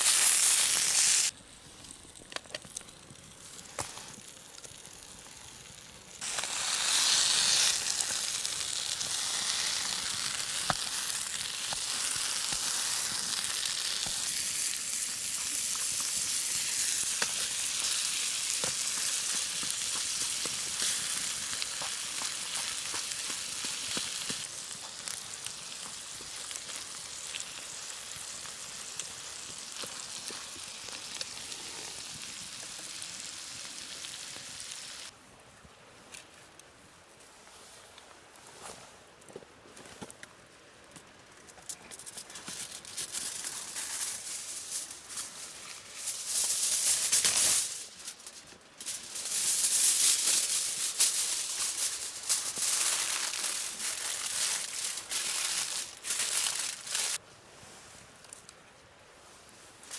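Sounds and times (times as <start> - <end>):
food sizzling in a pan: 0.0 - 1.3, 6.2 - 35.1.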